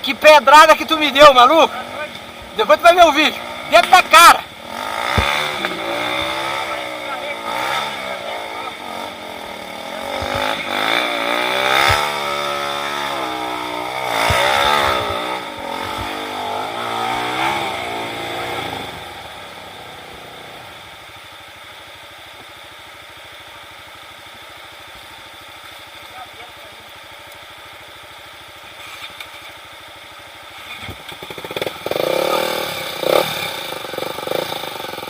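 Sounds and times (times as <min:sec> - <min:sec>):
trail motorcycle engine revving: 0:00.0 - 0:21.4, 0:26.0 - 0:35.0
sharp knocks: 0:11.7 - 0:12.4.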